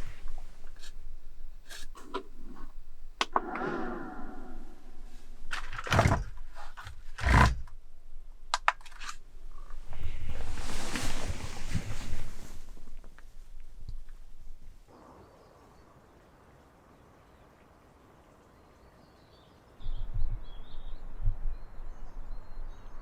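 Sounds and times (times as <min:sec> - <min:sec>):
rushing rustling noise: 0:09.8 - 0:13.0.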